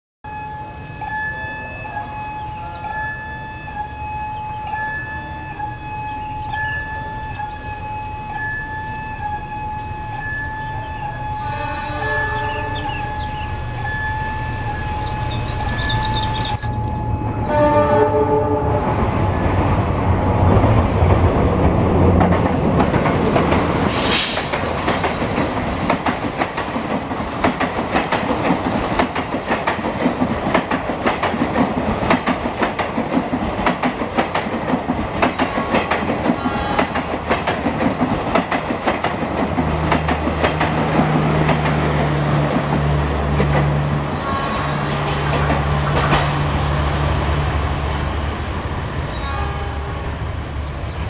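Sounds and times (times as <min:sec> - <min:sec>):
locomotive engine passing: 0:01.5 - 0:51.0
train horn: 0:10.1 - 0:19.4, 0:35.6 - 0:37.2, 0:44.0 - 0:45.5, 0:49.1 - 0:50.3
train wheels clattering: 0:19.5 - 0:43.9, 0:44.8 - 0:46.5.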